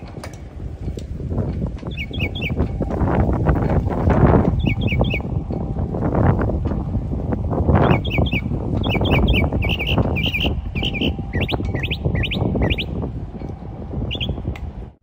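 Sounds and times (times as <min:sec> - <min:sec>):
loud low rumbling noise: 0:00.0 - 0:15.0
songbird chirping: 0:01.8 - 0:03.6, 0:04.3 - 0:05.5, 0:07.8 - 0:13.0, 0:14.0 - 0:14.5.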